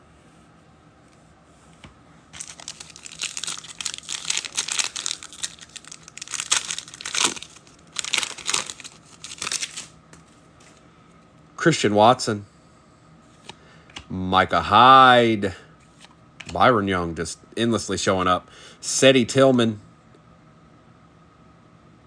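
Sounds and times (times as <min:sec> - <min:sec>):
foil wrapper tearing and crinkling: 0:02.4 - 0:10.0.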